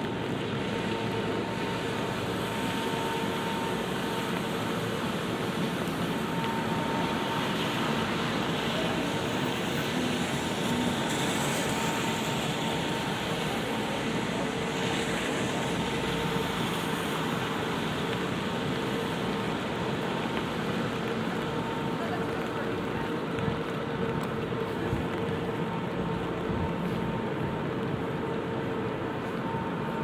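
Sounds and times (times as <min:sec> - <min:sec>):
city traffic hum: 0:00.0 - 0:30.0
rain on an umbrella: 0:00.0 - 0:30.0.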